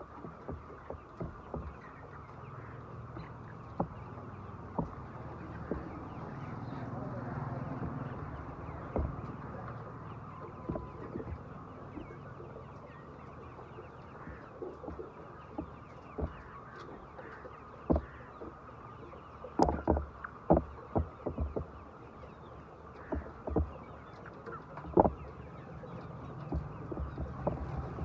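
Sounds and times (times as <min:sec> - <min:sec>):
chickens clucking and peeping: 0:00.0 - 0:28.0
sharp knocks: 0:00.2 - 0:01.9, 0:04.7 - 0:06.2, 0:07.7 - 0:09.4, 0:14.2 - 0:16.5, 0:17.9 - 0:18.2, 0:19.6 - 0:21.7, 0:23.1 - 0:23.8, 0:24.8 - 0:25.2, 0:26.4 - 0:28.0.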